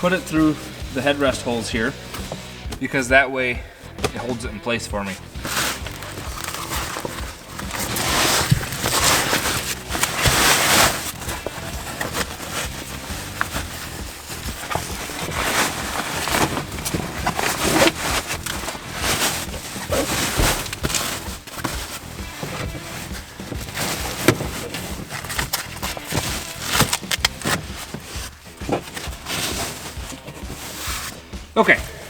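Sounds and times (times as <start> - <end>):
fabric seat cover rustling: 0.0 - 3.2, 4.0 - 32.0.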